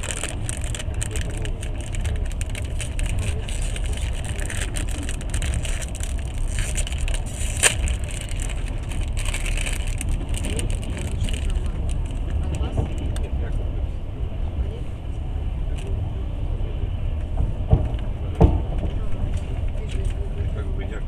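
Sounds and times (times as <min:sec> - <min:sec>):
small crackles: 0:00.0 - 0:13.2
moving train rumble and rattle: 0:00.0 - 0:21.0.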